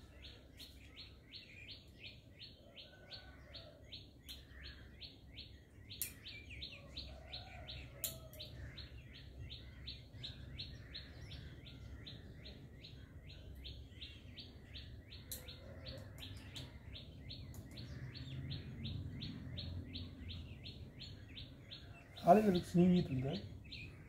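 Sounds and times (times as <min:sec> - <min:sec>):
bird chirping: 0:00.0 - 0:24.0
faint sharp clicks: 0:04.2 - 0:04.5, 0:05.9 - 0:06.3, 0:08.0 - 0:08.5.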